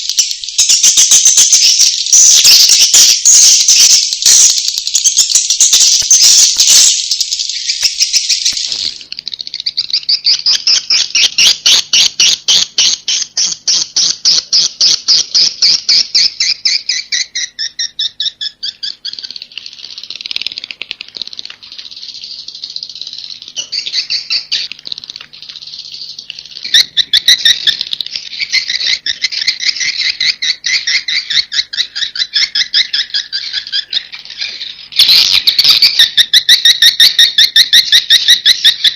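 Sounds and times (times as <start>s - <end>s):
swiftlets twittering: 0.0s - 38.9s.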